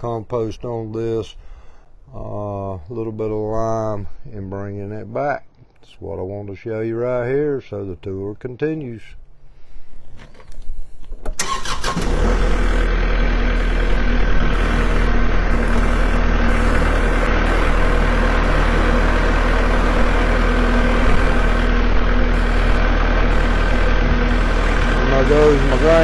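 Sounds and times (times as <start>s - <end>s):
tractor engine starting and running: 10.0s - 26.0s.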